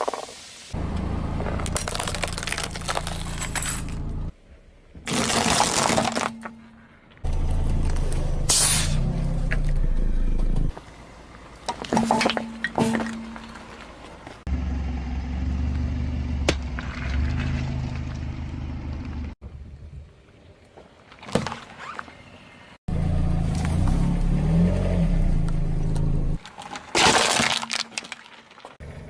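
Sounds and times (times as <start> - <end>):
objects cracking under tyres: 0.0 - 8.8, 10.7 - 14.5, 25.4 - 28.8
car engine running low: 0.8 - 4.3, 7.3 - 11.6, 22.9 - 26.4.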